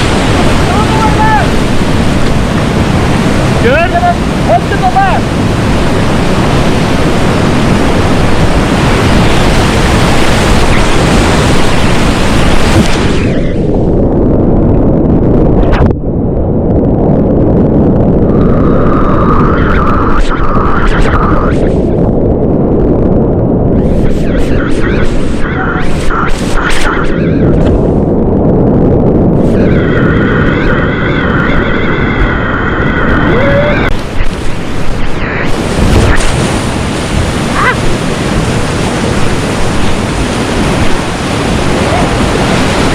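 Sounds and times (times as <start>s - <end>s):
whitewater rapids rushing: 0.0s - 13.3s, 33.2s - 42.9s.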